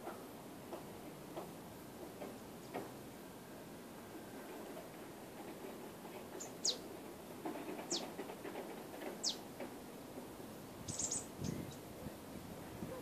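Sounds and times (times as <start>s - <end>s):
bird whistling: 10.9s - 11.3s
short high bird chirps: 10.9s - 11.3s.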